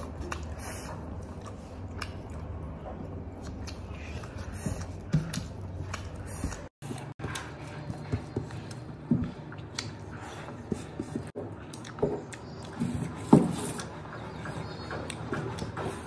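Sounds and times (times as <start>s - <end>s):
person chewing: 0.0s - 12.8s.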